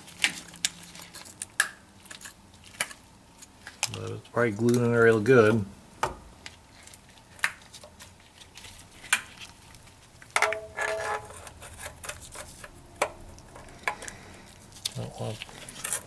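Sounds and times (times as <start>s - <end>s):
ringing metal scrape: 10.5s - 12.6s.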